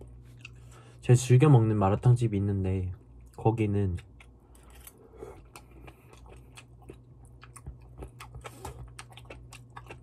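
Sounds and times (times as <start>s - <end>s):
faint low hum: 0.0s - 10.0s
wet chewing clicks and crunches: 3.1s - 10.0s.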